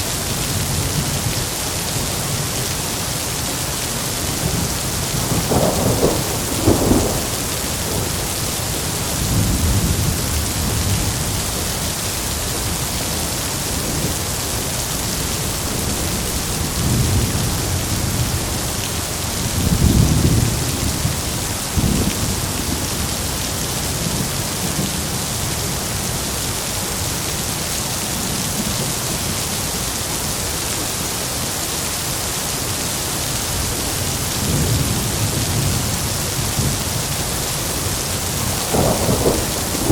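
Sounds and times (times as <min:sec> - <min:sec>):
heavy rain: 0:00.0 - 0:39.9
thunder rumbling: 0:04.3 - 0:11.6, 0:34.4 - 0:39.9
sharp thunder clap: 0:05.2 - 0:08.6, 0:38.4 - 0:39.9.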